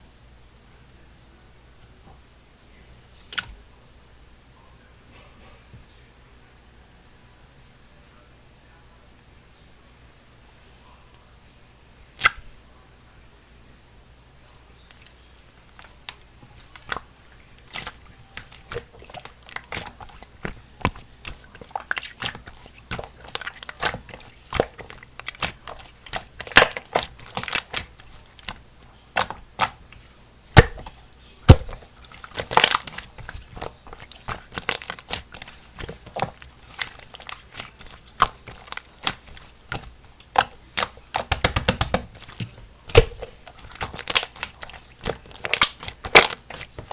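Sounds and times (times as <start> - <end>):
slime squished by hand: 15.7 - 46.9.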